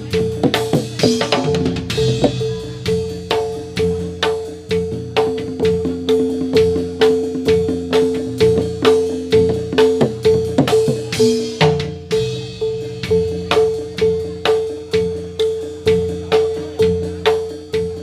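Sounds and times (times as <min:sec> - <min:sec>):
drums: 0:00.0 - 0:18.0
struck metal percussion: 0:00.0 - 0:18.0.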